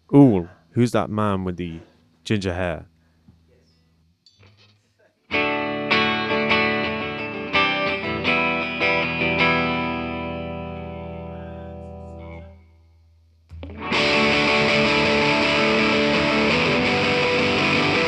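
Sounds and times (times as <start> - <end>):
distorted guitar chord strummed: 5.3 - 12.4, 13.5 - 18.0
electric guitar picked notes: 5.3 - 12.5, 13.5 - 18.0.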